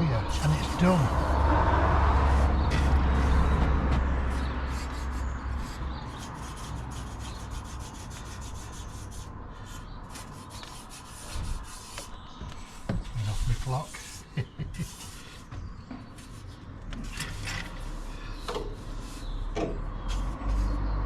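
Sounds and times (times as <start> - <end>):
brush sweeping boards: 10.2 - 15.6, 16.2 - 19.4, 20.0 - 20.9.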